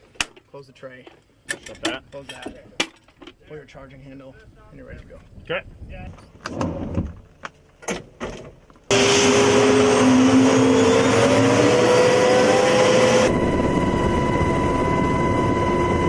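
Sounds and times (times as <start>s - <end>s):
helicopter turbine engines whining: 8.9s - 16.0s.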